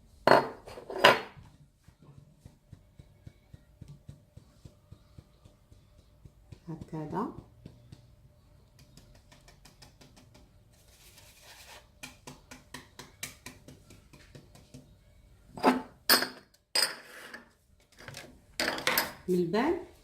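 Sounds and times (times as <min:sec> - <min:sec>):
utensils tapping a mixing bowl: 0:00.3 - 0:10.6, 0:11.9 - 0:15.0
utensil rubbing a bowl: 0:00.8 - 0:15.0.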